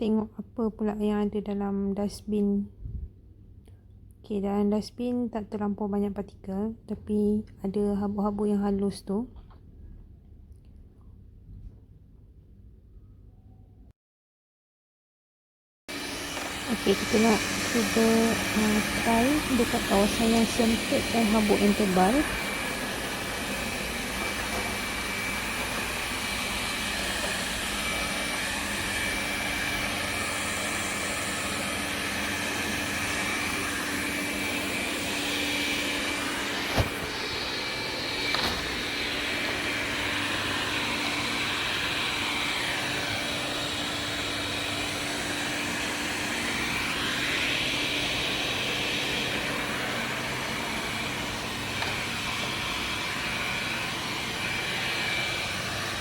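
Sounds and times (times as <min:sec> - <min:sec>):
robot vacuum whirring: 0:15.9 - 0:56.0.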